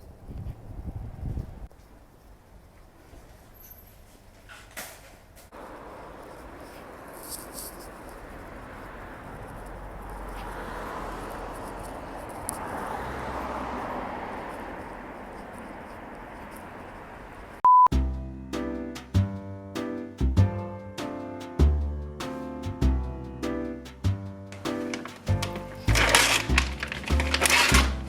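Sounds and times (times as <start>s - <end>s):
acoustic guitar music: 17.9s - 28.0s.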